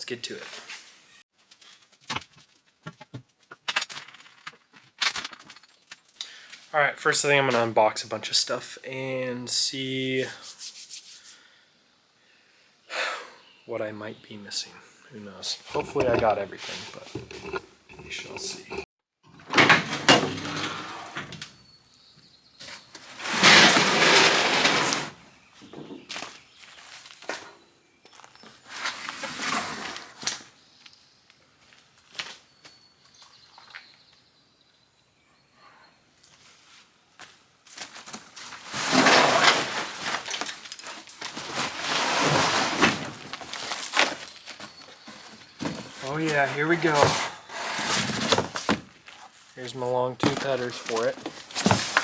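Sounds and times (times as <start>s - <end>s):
cardboard and packing rustling: 37.7s - 49.5s, 50.2s - 52.0s.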